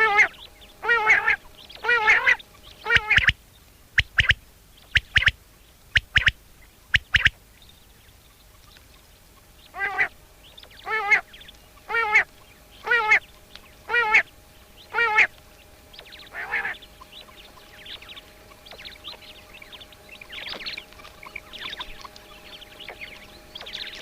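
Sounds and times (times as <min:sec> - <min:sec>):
nasal duck-like call: 0:00.0 - 0:03.4, 0:09.7 - 0:10.1, 0:10.8 - 0:11.3, 0:11.9 - 0:13.2, 0:13.9 - 0:14.3, 0:14.9 - 0:15.3, 0:16.3 - 0:16.8
quail song: 0:00.0 - 0:24.0.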